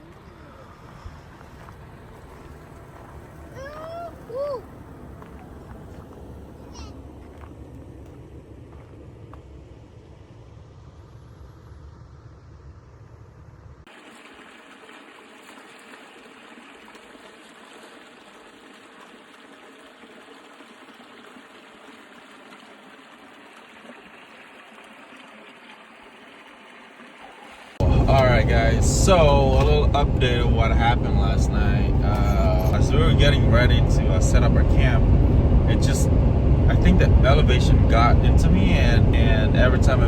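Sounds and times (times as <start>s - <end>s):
deep rumble: 0.2s - 13.9s, 27.8s - 40.0s.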